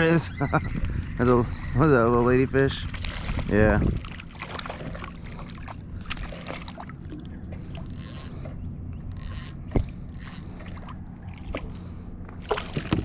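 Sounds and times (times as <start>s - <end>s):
fishing reel cranking: 7.8s - 8.3s, 9.1s - 10.5s.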